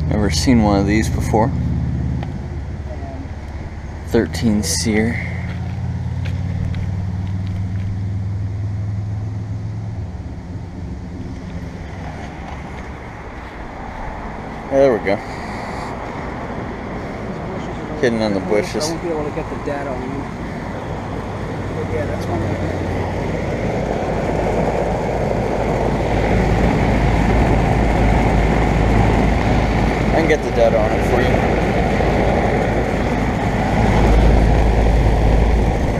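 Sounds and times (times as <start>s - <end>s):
condenser fan rushing: 16.0s - 35.9s.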